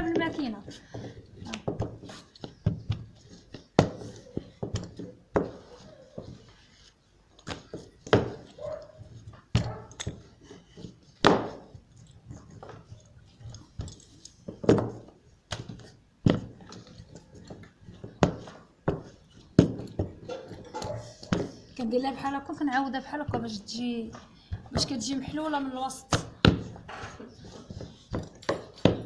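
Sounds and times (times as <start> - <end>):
soft handling noise: 0.0 - 29.0.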